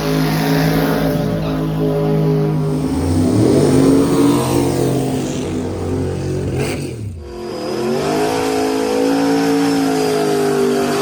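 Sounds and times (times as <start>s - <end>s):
drag racing engines running hard: 0.0s - 11.0s.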